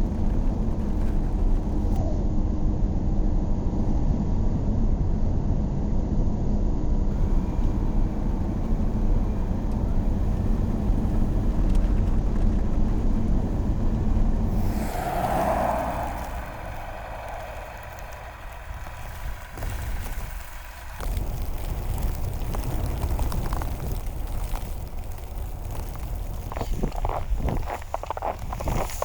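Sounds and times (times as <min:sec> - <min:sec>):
vehicle engine and road rumble: 0:00.0 - 0:02.6, 0:07.1 - 0:29.0
high hiss: 0:14.4 - 0:23.5.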